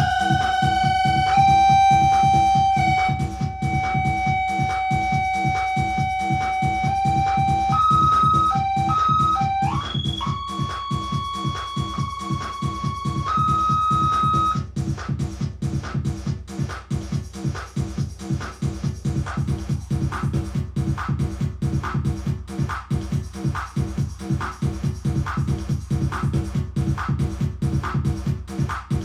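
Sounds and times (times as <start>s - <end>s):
ringing mixer feedback tone: 0.0s - 14.6s
distorted drum machine beat: 0.0s - 29.0s.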